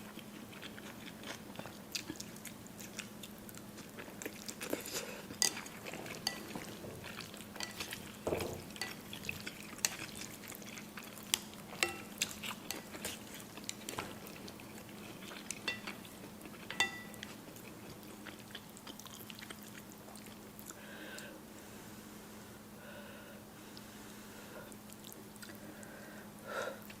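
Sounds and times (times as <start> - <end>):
chewing: 0.1 - 20.8, 24.8 - 25.8
utensils clinking against bowl: 5.4 - 10.1, 11.7 - 13.2, 15.6 - 16.0, 16.6 - 17.3.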